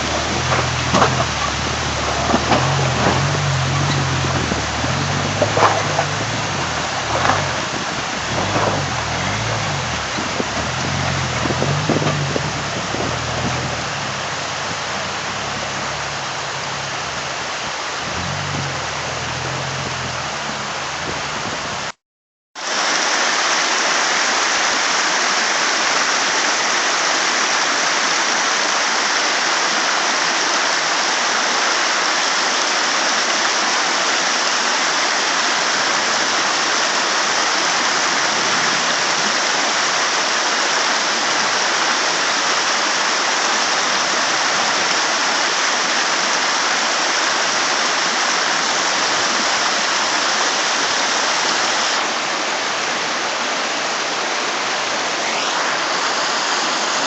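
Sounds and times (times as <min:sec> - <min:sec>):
low rumble: 0:00.0 - 0:22.0
running water rushing: 0:00.0 - 0:22.0, 0:22.6 - 0:57.0.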